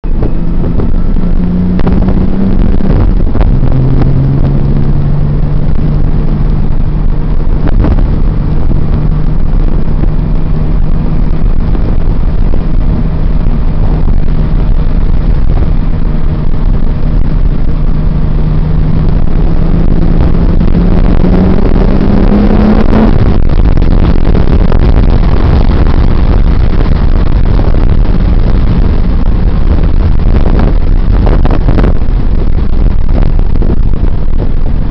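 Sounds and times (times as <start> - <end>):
car engine rumbling: 0.0 - 34.9
loud rushing noise: 0.0 - 34.9.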